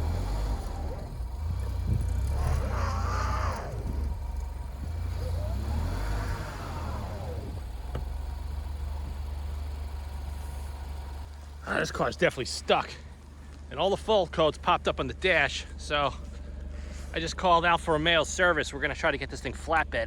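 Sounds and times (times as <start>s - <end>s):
car engine revving: 0.0s - 12.5s
low rumble: 0.0s - 19.3s.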